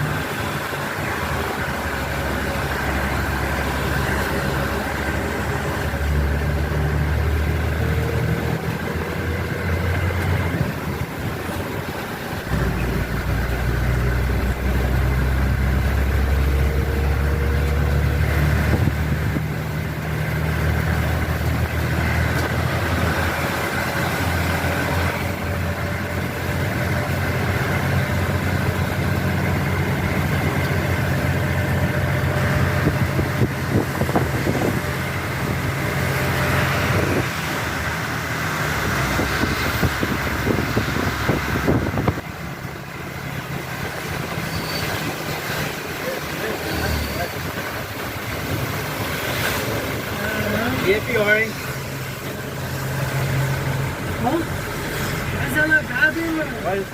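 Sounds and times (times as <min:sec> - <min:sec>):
car engine running: 0:00.0 - 0:56.9
heavy rain hissing: 0:18.2 - 0:56.9.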